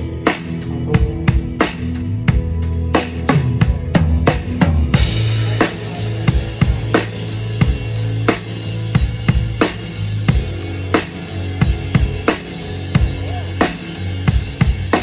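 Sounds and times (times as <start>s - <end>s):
drum kit beat: 0.0s - 15.0s
low bass notes: 0.0s - 15.0s
cymbals: 4.9s - 15.0s.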